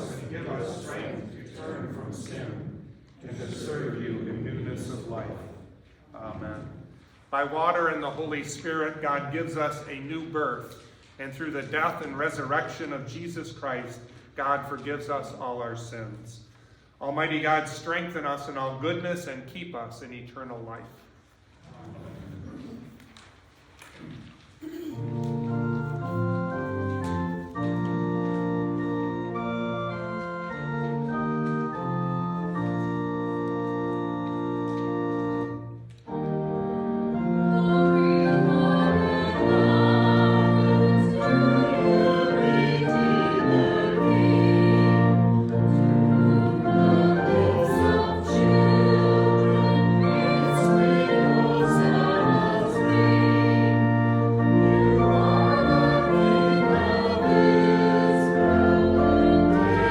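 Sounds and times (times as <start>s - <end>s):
church organ chords: 0.0s - 2.6s, 25.0s - 59.9s
congregation singing a hymn: 0.0s - 7.0s, 24.9s - 59.9s.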